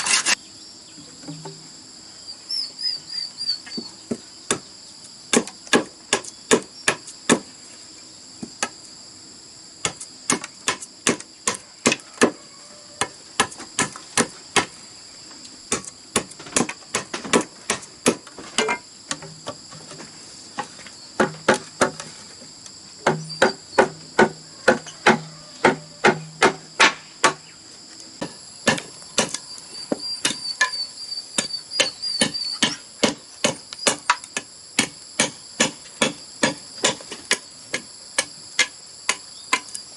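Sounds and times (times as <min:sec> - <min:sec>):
insects trilling: 0:00.0 - 0:39.9
tool knocking on bamboo: 0:01.2 - 0:01.6, 0:21.2 - 0:22.1, 0:23.0 - 0:27.4.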